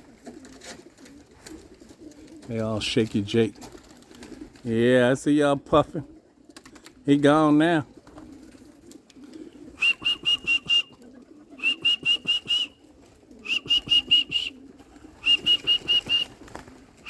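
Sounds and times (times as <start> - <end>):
pigeons cooing: 0.0 - 17.0
high sharp chirping call: 9.8 - 11.0, 15.2 - 16.3.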